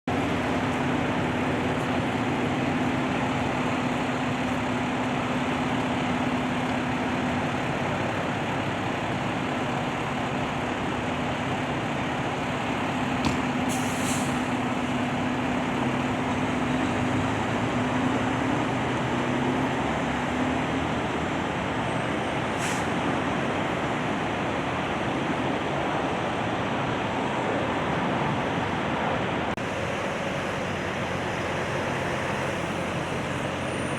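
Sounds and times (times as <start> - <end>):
large vehicle engine hum: 0.0 - 33.9
road traffic noise: 0.0 - 33.9
brief hissing: 13.7 - 14.5, 22.6 - 22.9.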